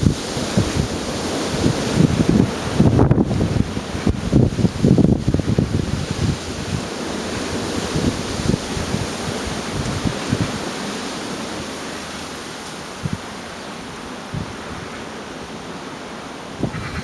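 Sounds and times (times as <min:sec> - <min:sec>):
strong wind rushing: 0:00.0 - 0:10.8, 0:14.2 - 0:15.2, 0:16.5 - 0:17.0
wind buffeting microphone: 0:00.0 - 0:17.0.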